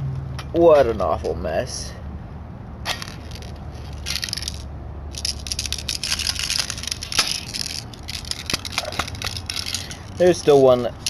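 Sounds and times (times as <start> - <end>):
plastic toy gun clicks and rattles: 3.0 - 10.4.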